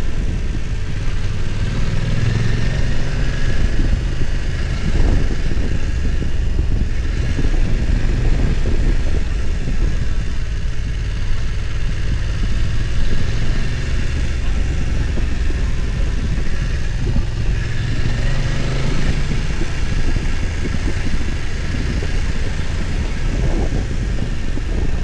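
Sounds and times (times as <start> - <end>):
motorcycle engine rumbling: 0.0 - 25.0.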